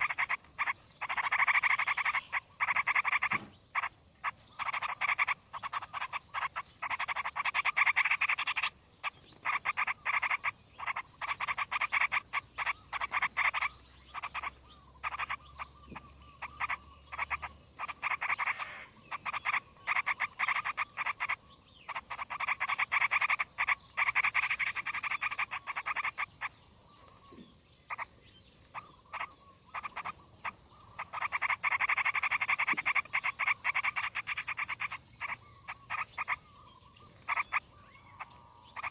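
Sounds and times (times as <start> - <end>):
frogs croaking: 0.0 - 38.9.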